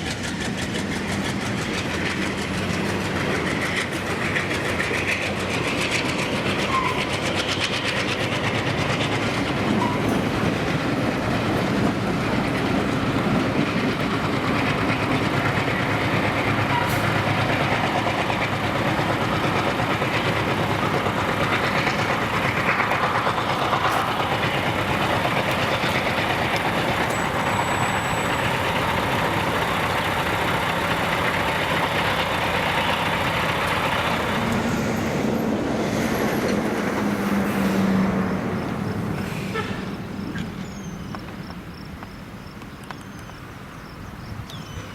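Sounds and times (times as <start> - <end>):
freight train wheels rumbling: 0.0 - 44.9
thin high squeal: 6.6 - 7.1.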